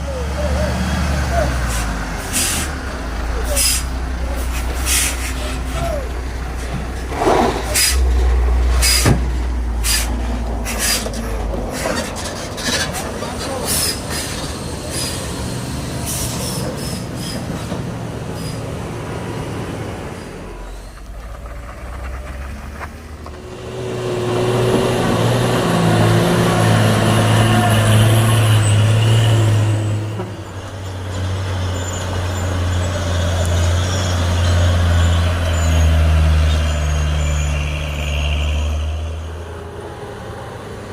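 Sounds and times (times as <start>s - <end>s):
diesel truck engine drone: 0.0s - 40.9s
air brakes hissing: 1.6s - 2.8s, 3.4s - 6.0s, 7.2s - 8.1s, 8.8s - 11.2s, 13.5s - 18.8s.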